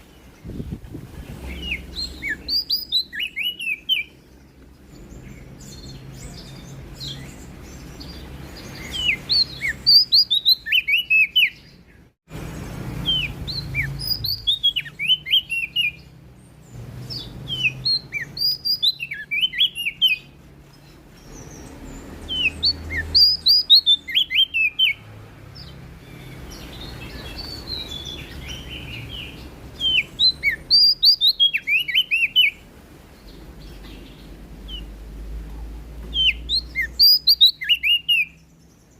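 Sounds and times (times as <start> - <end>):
songbird rapid high chirping: 0.0 - 38.9.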